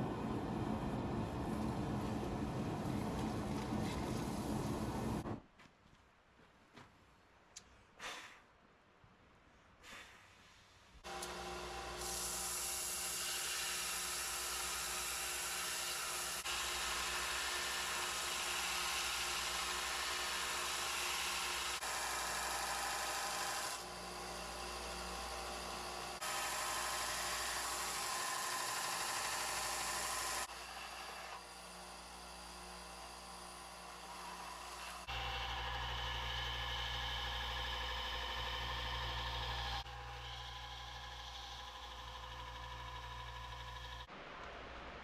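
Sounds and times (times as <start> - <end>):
electric power tool humming: 11.0 - 44.1.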